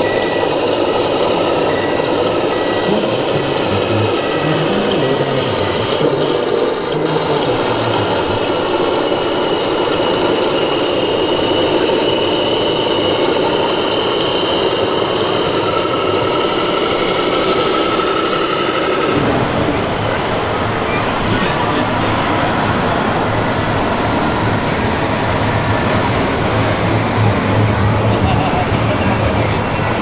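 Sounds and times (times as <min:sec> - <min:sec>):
toy construction machines running: 0:00.0 - 0:30.0.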